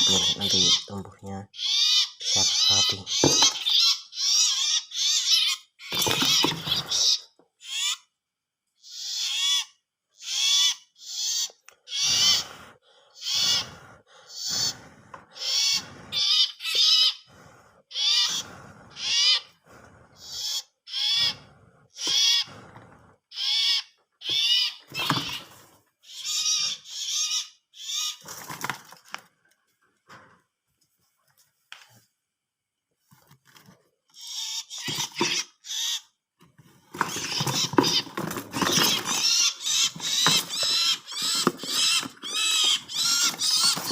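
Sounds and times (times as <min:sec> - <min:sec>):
bird distress squawks: 0:00.0 - 0:08.1, 0:08.8 - 0:17.3, 0:17.9 - 0:19.6, 0:20.2 - 0:22.6, 0:23.3 - 0:28.4, 0:34.1 - 0:36.2, 0:37.0 - 0:43.9.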